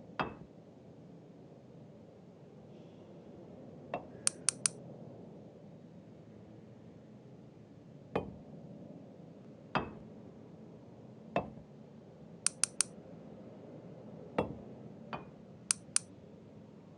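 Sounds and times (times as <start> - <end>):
light high clicks: 4.2 - 4.8, 12.5 - 12.9, 15.7 - 16.1.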